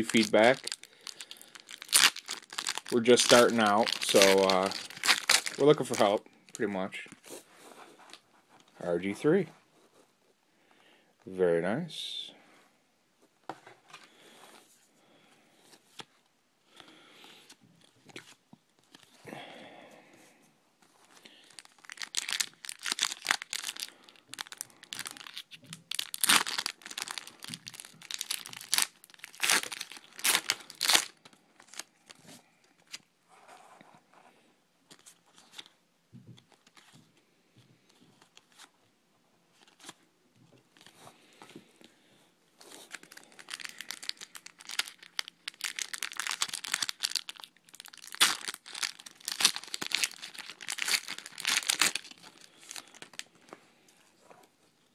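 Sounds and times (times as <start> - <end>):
wrappers crinkling and tearing: 0.0 - 6.7, 21.4 - 33.0, 42.6 - 53.5.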